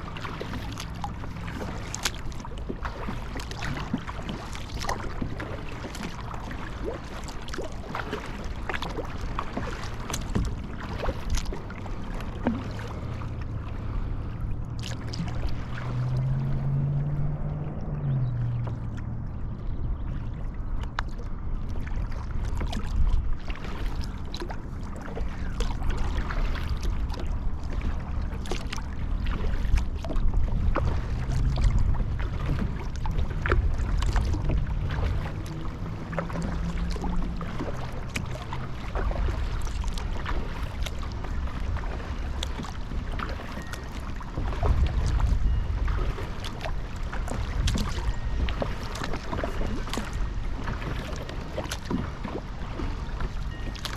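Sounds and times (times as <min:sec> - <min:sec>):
paddle splashing water: 0:00.0 - 0:53.9
water lapping at hull: 0:00.0 - 0:53.9
steady low rumble: 0:10.4 - 0:43.2
low hum: 0:12.1 - 0:22.5.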